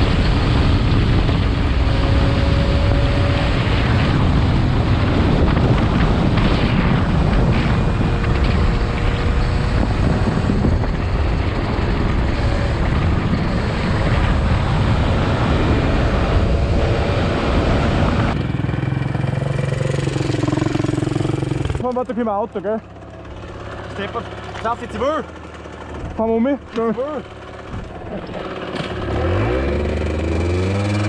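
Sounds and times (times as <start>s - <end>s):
wind buffeting microphone: 0.0s - 21.9s
motorbike engine running: 0.0s - 31.0s.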